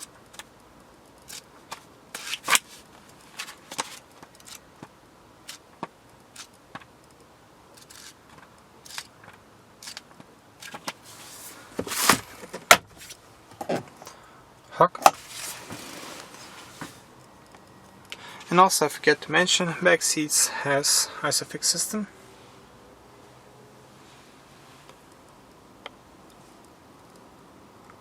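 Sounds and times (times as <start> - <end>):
objects handled clicking and rustling: 0.0 - 14.1, 15.0 - 18.2.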